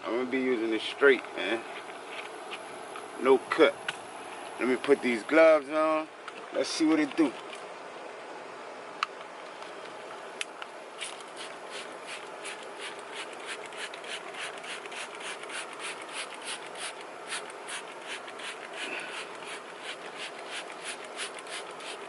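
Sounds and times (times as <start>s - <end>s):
trigger spray bottle squirting: 11.0s - 22.0s.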